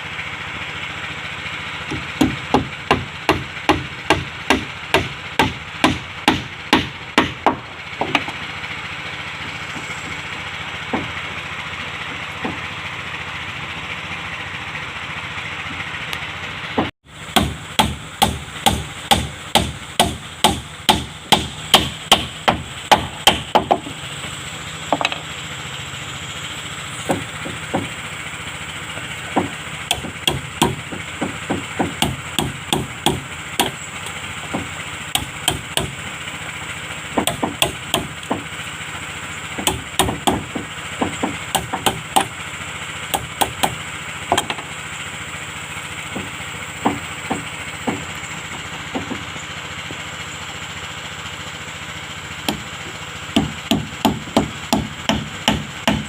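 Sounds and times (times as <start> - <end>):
hammer striking wood: 1.9 - 8.4, 10.9 - 11.2, 12.4 - 12.7, 16.8 - 24.0, 24.9 - 25.2, 27.0 - 28.0, 28.9 - 36.0, 37.2 - 38.6, 39.6 - 42.4, 43.1 - 44.7, 46.1 - 49.3, 52.4 - 56.0.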